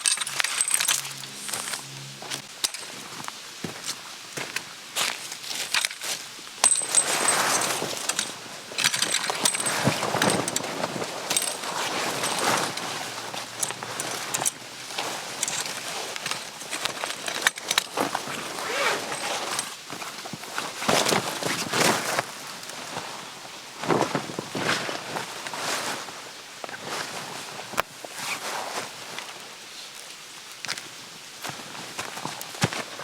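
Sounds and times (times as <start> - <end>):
rustling and scraping: 0.0 - 33.0
light metallic clinks: 5.6 - 14.6.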